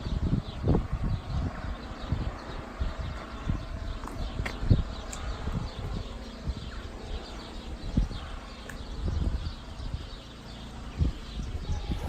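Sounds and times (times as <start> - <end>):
faint bird chirps: 6.3 - 12.0.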